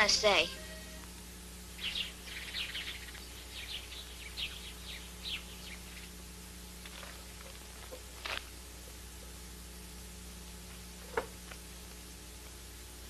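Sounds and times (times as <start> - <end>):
small birds chirping: 1.8 - 6.2.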